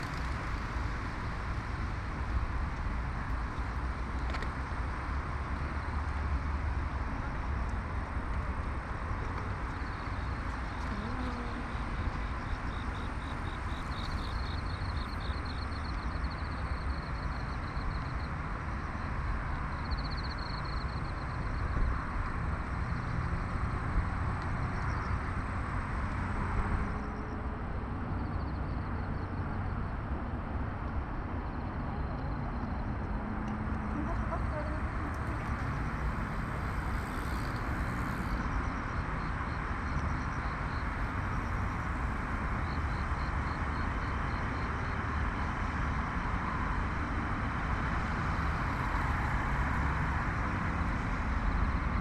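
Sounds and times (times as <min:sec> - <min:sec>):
city traffic noise: 0:00.0 - 0:52.0
pulsing insect trills: 0:09.4 - 0:25.4, 0:33.9 - 0:45.2.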